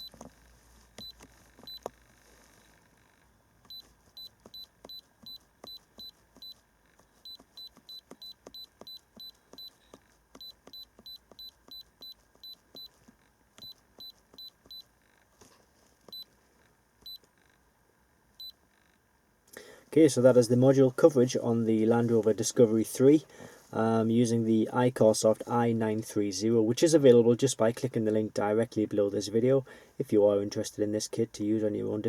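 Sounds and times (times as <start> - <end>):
short high keypad beeps: 7.3 - 13.0, 13.6 - 14.9.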